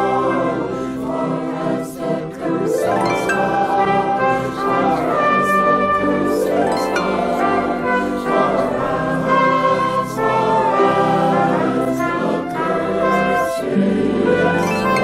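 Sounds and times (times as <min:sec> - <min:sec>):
brass ensemble playing chords: 0:02.7 - 0:15.0.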